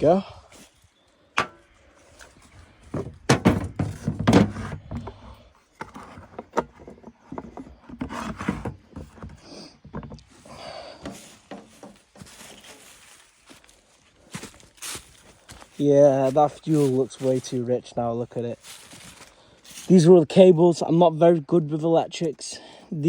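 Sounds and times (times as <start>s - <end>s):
motorbike parts and tools clunking: 1.3s - 12.8s.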